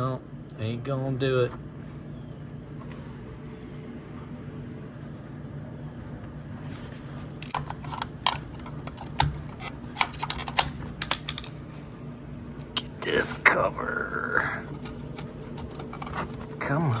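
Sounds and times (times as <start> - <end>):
refrigerator humming: 0.0 - 17.0
clicks and knocks of handled parts: 7.4 - 11.6, 14.7 - 16.6.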